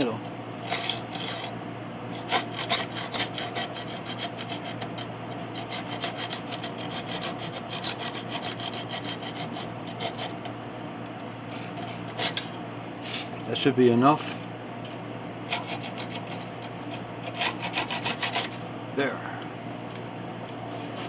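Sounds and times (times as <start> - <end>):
hand saw rasping through metal: 2.1 - 10.4, 15.5 - 16.6, 17.2 - 18.5.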